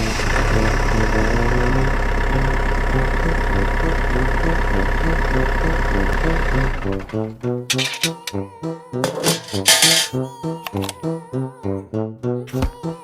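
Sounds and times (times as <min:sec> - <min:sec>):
engine idling: 0:00.0 - 0:08.0.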